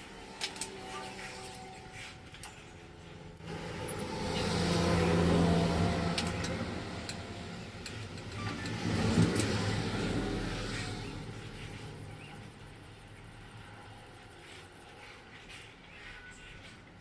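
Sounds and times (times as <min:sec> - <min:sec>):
vehicle engine passing by: 0:03.4 - 0:14.6.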